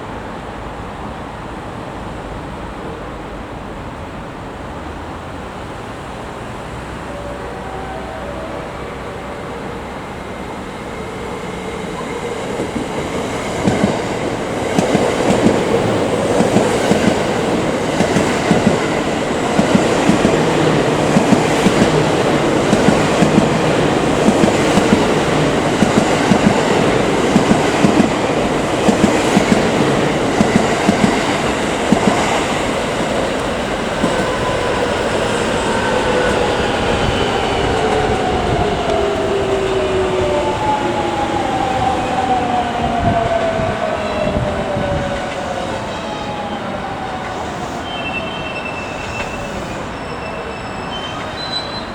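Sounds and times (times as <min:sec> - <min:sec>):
whines falling in pitch: 0:06.9 - 0:12.7.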